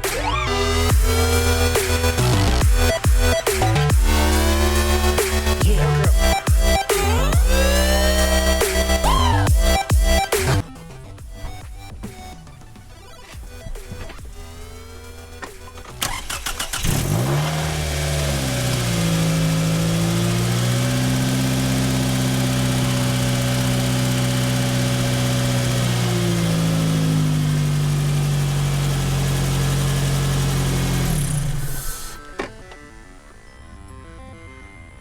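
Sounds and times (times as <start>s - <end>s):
car engine idling: 14.3s - 32.2s
starter cranking engine: 15.7s - 32.2s.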